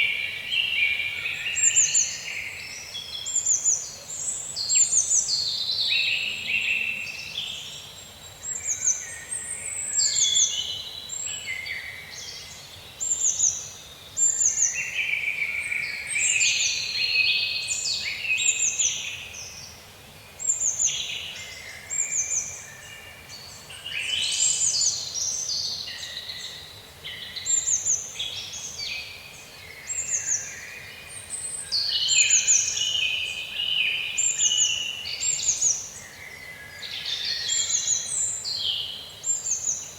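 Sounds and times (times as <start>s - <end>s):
songbirds chirping and singing: 20.4s - 39.9s.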